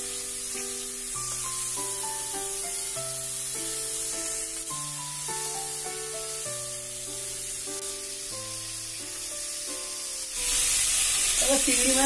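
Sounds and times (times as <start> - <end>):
prawns sizzling in hot oil: 0.0 - 12.0.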